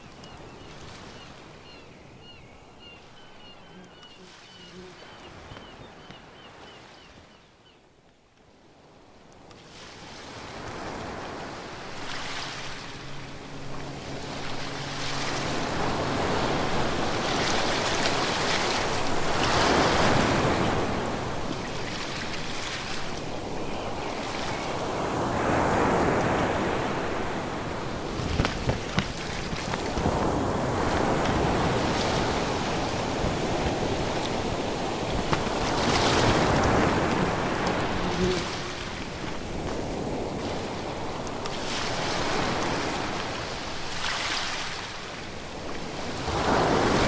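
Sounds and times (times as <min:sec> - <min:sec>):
ocean waves breaking: 0:09.6 - 0:47.0.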